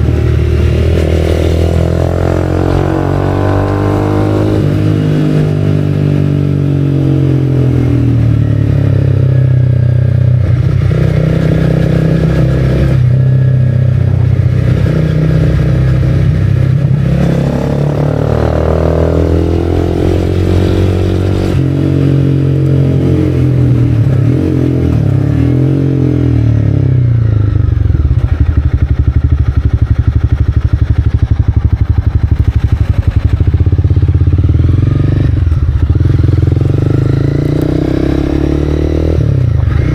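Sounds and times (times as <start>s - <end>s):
motorcycle engine revving: 0.0s - 39.9s
motorcycle engine idling: 27.1s - 37.4s.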